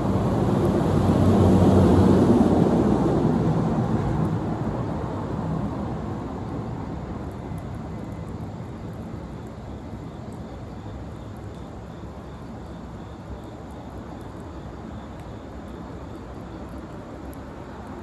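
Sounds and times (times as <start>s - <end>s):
faint fire crackles: 3.8s - 18.0s.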